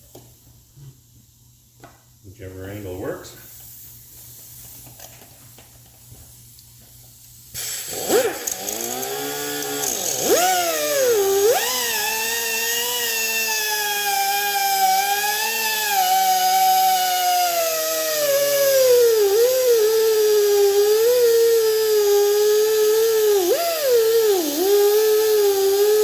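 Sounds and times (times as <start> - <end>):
rotary grinder whining: 7.6 - 26.0.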